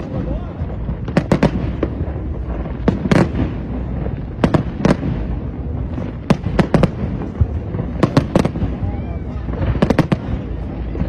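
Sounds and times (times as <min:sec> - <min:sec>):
fireworks bangs: 0:00.0 - 0:11.0
steady low rumble: 0:00.0 - 0:11.0.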